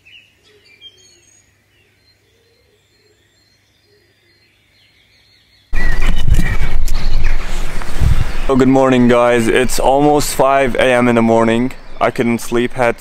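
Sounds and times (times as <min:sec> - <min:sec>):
birds chirping: 0:00.0 - 0:13.0
loud rush of noise: 0:05.8 - 0:10.3
low hiss: 0:06.1 - 0:13.0.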